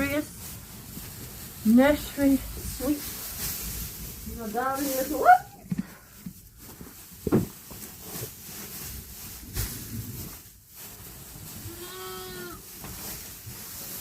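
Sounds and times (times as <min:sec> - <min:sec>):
rustling in straw: 0:00.0 - 0:14.0
sheep bleating: 0:11.7 - 0:12.6.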